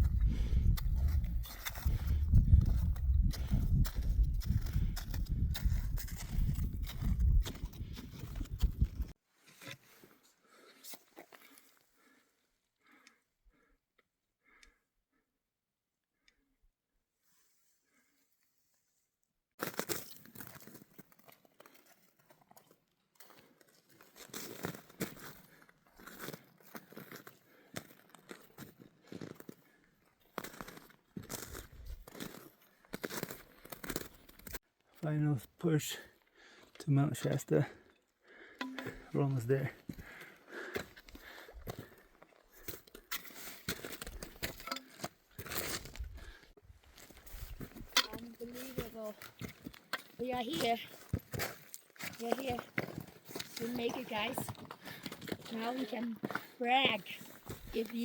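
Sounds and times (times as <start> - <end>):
boots crunching on rocky ground: 0.0 - 9.1, 38.8 - 58.0
wind rumble on microphone: 0.0 - 9.1
loud crunching and crinkling: 0.4 - 9.0.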